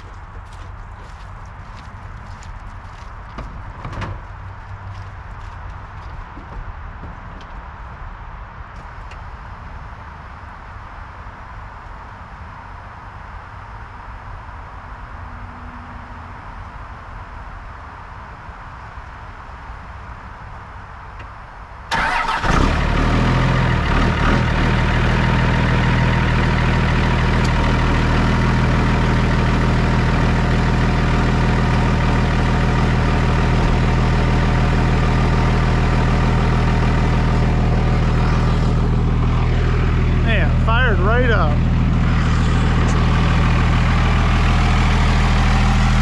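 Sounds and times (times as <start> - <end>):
diesel engine starting and idling: 21.9 - 46.0.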